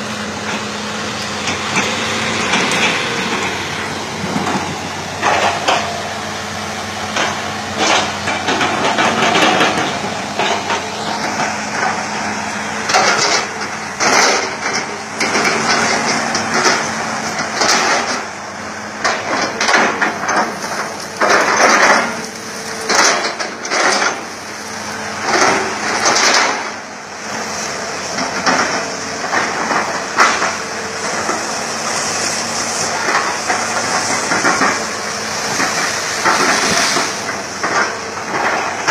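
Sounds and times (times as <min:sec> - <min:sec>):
excavator diesel engine running: 0:00.0 - 0:38.9
bucket crushing tree trunks: 0:19.0 - 0:26.9, 0:28.2 - 0:38.9.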